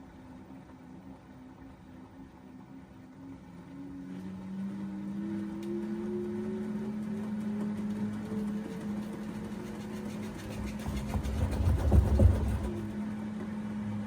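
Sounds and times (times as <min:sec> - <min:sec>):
low hum: 0:00.0 - 0:14.0
washing machine motor whining: 0:03.5 - 0:13.4.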